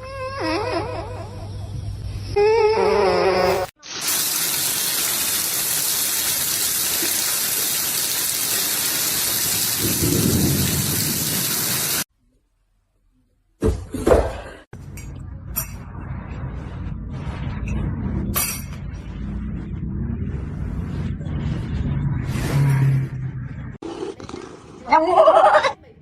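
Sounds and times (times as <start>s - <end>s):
heavy rain hissing: 3.8s - 12.1s.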